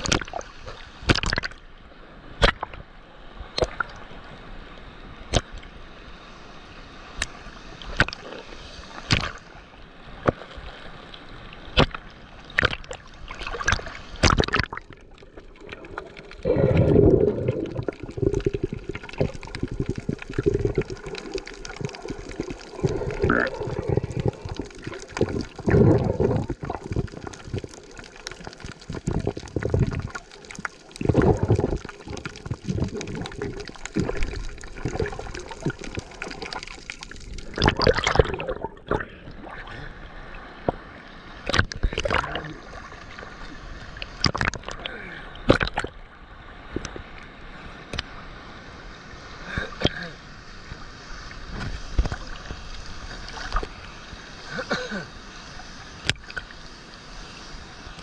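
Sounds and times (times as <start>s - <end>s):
water rushing at a waterfall: 0.0s - 1.4s, 49.4s - 50.8s, 51.4s - 58.0s.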